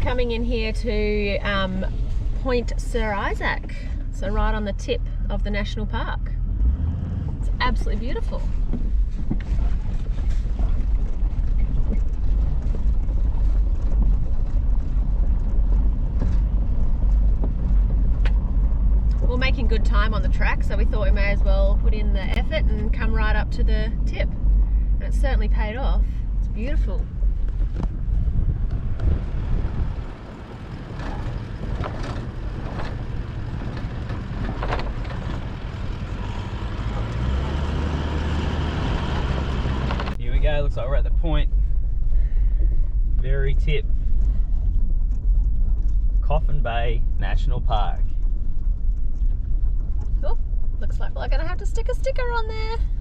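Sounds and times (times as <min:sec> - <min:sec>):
vehicle engine rumbling: 0:00.0 - 0:53.0
knocks and rattles: 0:27.4 - 0:37.7.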